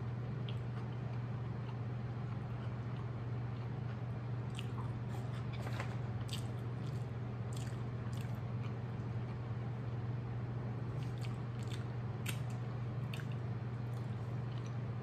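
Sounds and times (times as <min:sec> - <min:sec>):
steady low hum: 0:00.0 - 0:15.0
person chewing wet smacks: 0:00.4 - 0:04.9, 0:06.3 - 0:08.8, 0:11.0 - 0:14.8.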